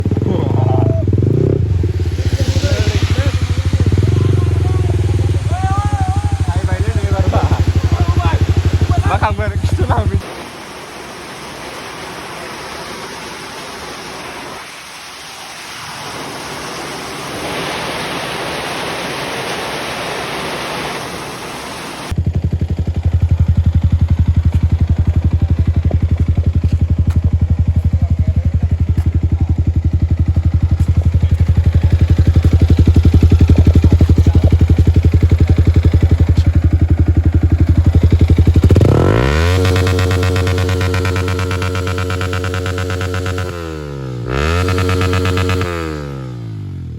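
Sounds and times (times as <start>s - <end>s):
motorcycle engine running: 0.0s - 10.2s, 22.1s - 46.9s
rising synth sweep: 0.0s - 10.3s, 31.2s - 46.9s
wind and road noise: 0.0s - 46.9s.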